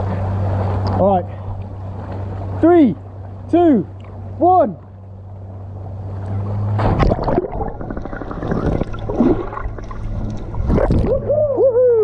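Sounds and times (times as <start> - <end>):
water churning and gurgling: 0.0 - 12.0
splash into water: 6.7 - 11.3
person whooping: 11.1 - 12.0.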